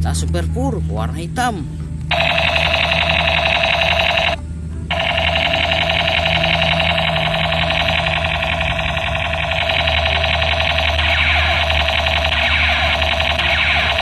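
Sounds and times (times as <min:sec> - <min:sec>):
toy gun electronic firing buzz: 0:02.1 - 0:14.0.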